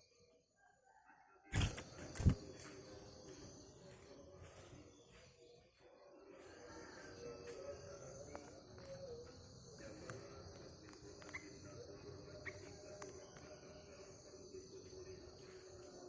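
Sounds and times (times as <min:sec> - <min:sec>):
high insect drone: 0:06.5 - 0:16.0.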